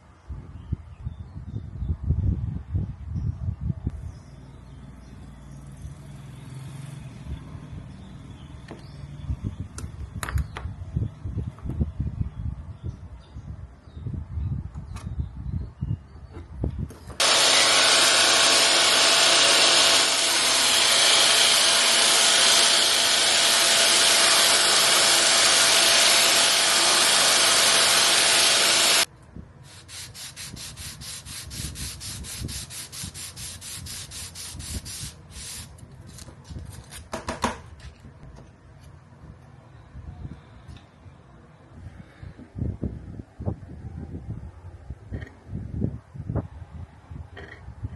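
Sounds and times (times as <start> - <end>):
machine sanding noise: 17.2 - 29.1, 29.7 - 35.7
fast rubbing strokes: 29.7 - 35.8.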